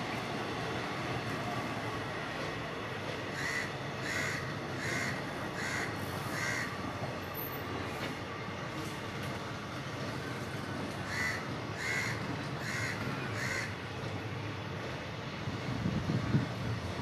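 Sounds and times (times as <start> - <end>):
train rumbling past: 0.0 - 17.0
crow cawing: 3.4 - 6.7, 11.1 - 13.7.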